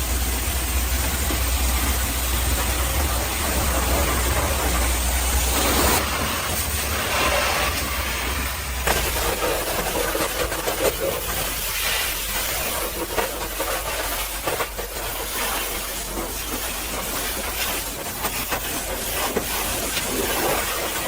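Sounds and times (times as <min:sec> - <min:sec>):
low hum: 0:00.0 - 0:09.9
pressure washer spraying: 0:00.0 - 0:21.0.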